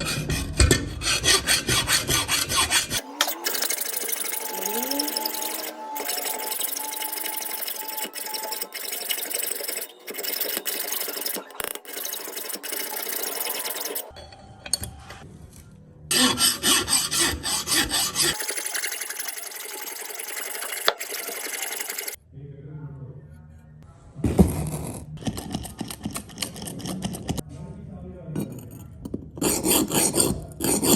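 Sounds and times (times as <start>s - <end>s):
file scraping scissor blades: 0.0s - 14.1s, 16.1s - 22.2s, 25.2s - 27.4s, 29.4s - 30.9s.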